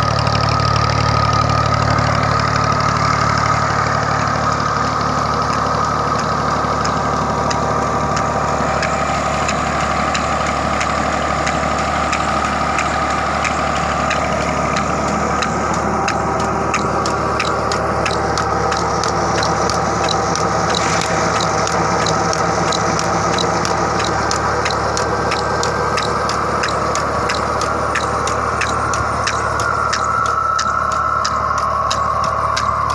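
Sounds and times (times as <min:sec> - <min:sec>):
tractor engine running: 0:00.0 - 0:32.9
sharp regular ticking: 0:00.1 - 0:32.9.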